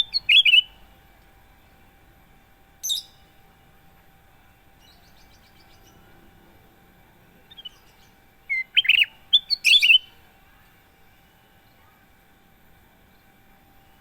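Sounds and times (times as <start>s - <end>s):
bulbul whistled chirps: 0.0s - 0.8s, 2.8s - 3.2s, 8.5s - 10.2s
faint bird notes: 7.4s - 10.8s.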